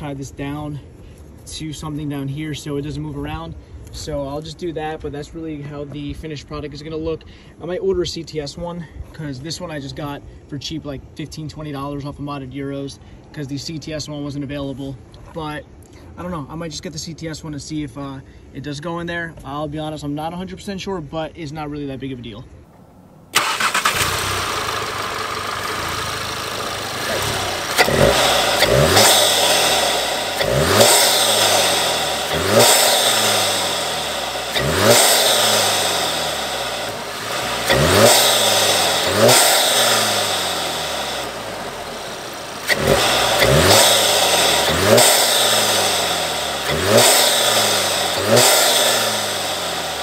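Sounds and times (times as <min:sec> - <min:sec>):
car engine revving: 0:22.8 - 0:50.0.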